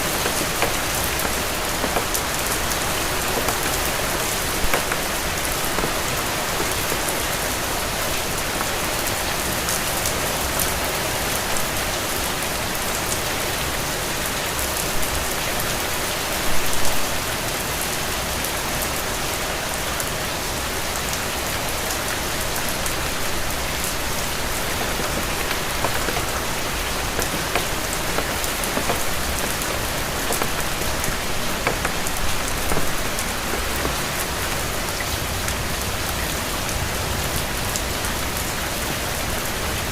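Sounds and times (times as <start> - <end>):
raindrop ticks: 0.0 - 9.9, 22.6 - 35.6
rain falling: 0.0 - 39.9.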